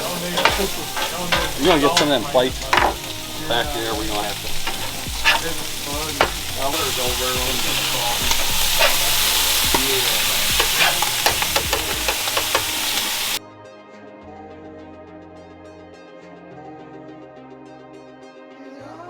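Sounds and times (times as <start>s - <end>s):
food sizzling in a hot pan: 0.0s - 13.4s
utensil scraping a pan: 0.0s - 13.4s.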